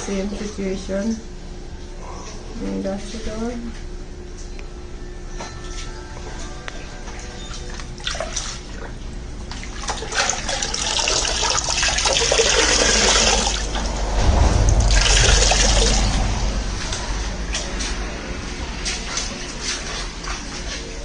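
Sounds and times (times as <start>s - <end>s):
floodwater sloshing and pouring: 7.6s - 21.0s
low rumble: 13.3s - 19.6s.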